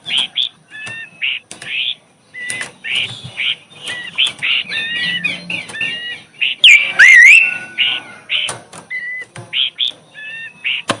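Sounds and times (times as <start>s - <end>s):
songbird chirping and whistling: 0.1s - 10.9s
loud swooping bird whistle: 6.6s - 7.8s.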